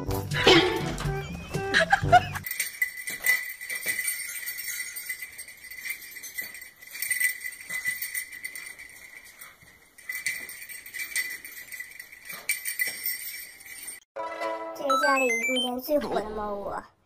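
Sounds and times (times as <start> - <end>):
small bells jingling: 0.8 - 14.1.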